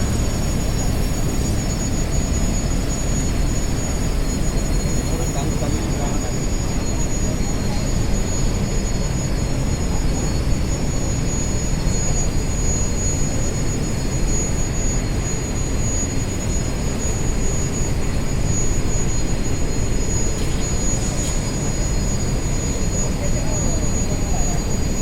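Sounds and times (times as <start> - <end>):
tractor diesel engine running: 0.0 - 6.8
high-pitched whine: 0.0 - 25.0.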